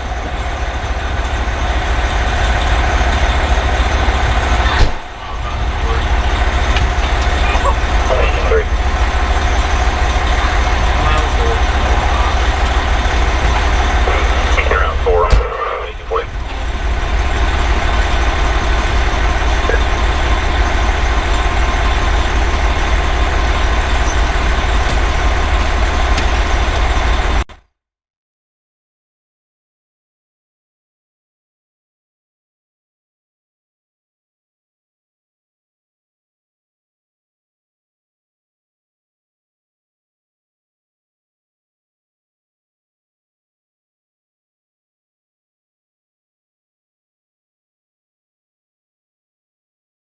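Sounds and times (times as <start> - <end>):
diesel engine rumbling: 0.0 - 27.6.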